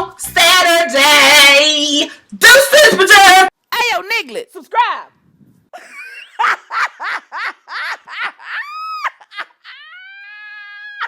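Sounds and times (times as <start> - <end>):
high-pitched laugh-like yelps: 5.8 - 11.0.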